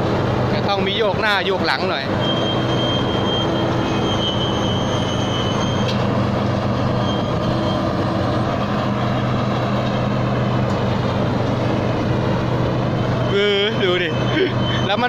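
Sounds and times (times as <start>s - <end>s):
combine harvester engine under load: 0.0s - 15.0s.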